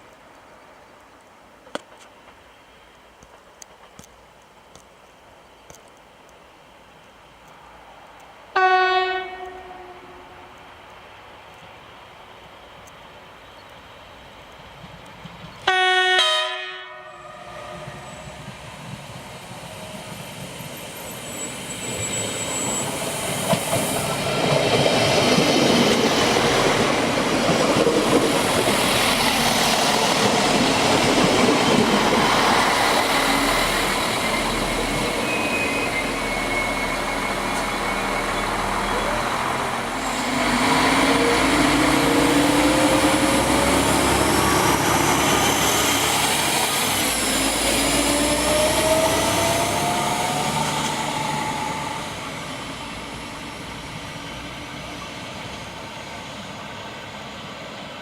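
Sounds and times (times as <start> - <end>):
train rumbling past: 7.6 - 58.0
train horn blast: 8.6 - 10.5, 15.7 - 18.2
wheel noise on rails: 17.5 - 58.0.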